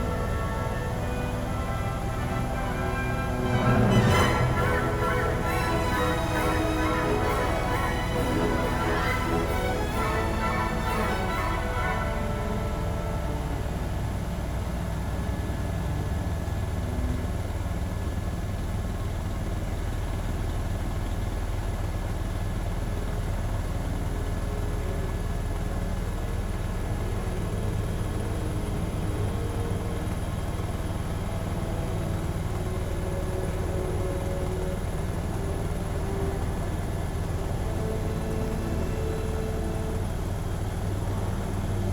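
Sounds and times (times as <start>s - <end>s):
high whine: 0.0s - 15.2s
helicopter rotor and engine drone: 0.0s - 41.9s.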